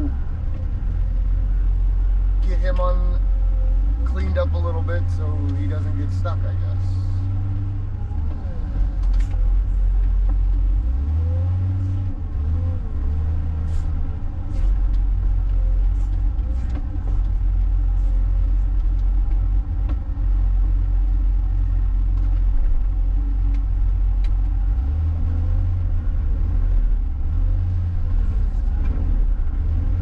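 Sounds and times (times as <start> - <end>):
diesel engine rumbling: 0.0 - 30.0.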